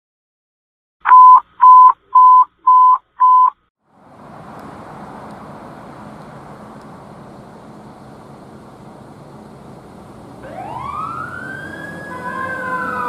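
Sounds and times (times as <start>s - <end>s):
electronic beeps: 1.1s - 3.6s
rushing noise with low hum: 3.9s - 11.2s.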